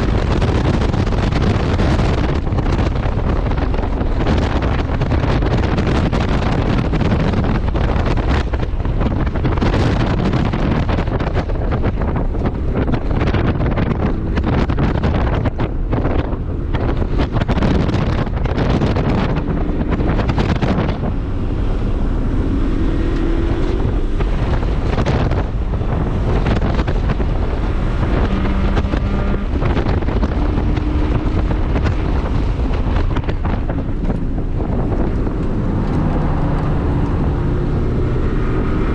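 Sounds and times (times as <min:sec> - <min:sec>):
car engine: 0:00.0 - 0:38.9
wind buffeting microphone: 0:00.0 - 0:38.9.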